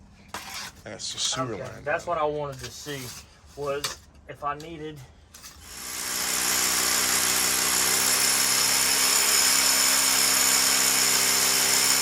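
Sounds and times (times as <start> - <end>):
power tool motor whirring: 5.6 - 12.0.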